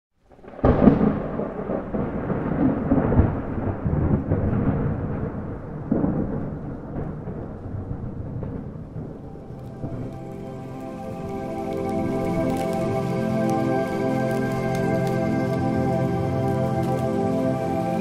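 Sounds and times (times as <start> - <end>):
thunder rumbling: 0.3 - 18.0.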